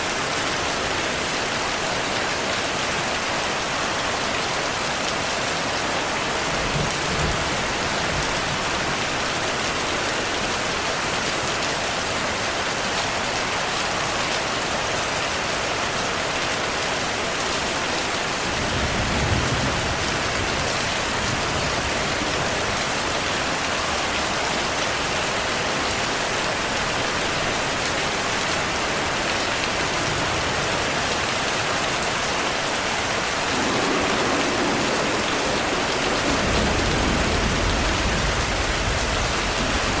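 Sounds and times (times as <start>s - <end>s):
steady rainfall: 0.0s - 40.0s
low thunder rumbles: 33.5s - 40.0s.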